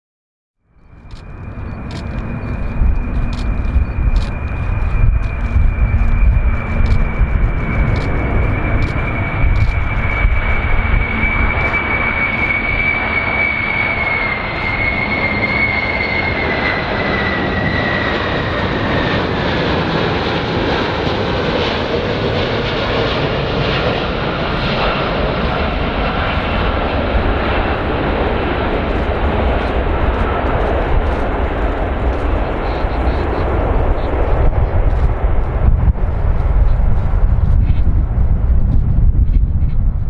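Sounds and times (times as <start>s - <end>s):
high engine whine: 0.6s - 40.0s
aircraft engines running: 0.7s - 40.0s.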